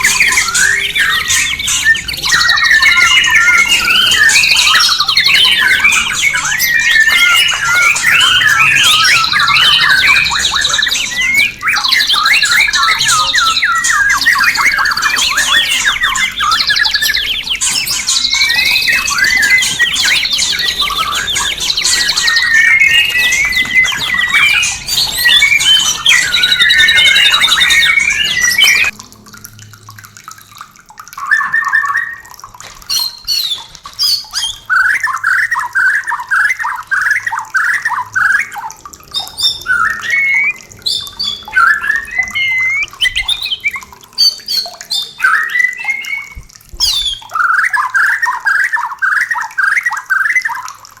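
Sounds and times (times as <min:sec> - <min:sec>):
rising whistled notes: 0:00.0 - 0:28.9, 0:39.2 - 0:47.7
songbird singing: 0:00.0 - 0:29.0, 0:31.2 - 0:50.8.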